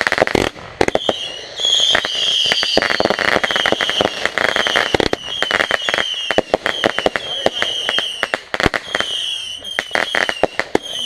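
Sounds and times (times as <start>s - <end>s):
fireworks bangs and crackles: 0.0s - 11.0s
fireworks whistling: 0.0s - 11.0s.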